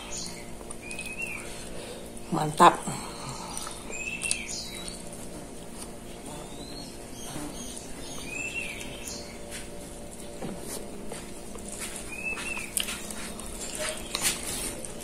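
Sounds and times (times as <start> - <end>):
steady low hum: 0.0 - 15.0
bird chirps: 3.6 - 5.1, 6.5 - 9.5, 12.1 - 12.7.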